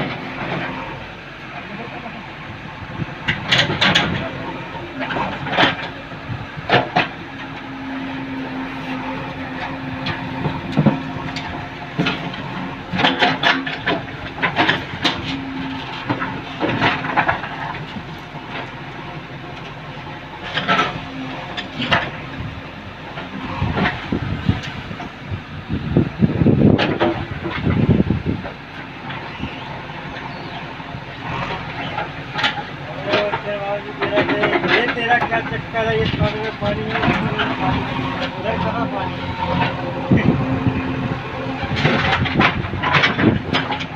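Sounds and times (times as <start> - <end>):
excavator diesel engine running: 0.0 - 43.9
bucket clanking and scraping: 31.3 - 43.9.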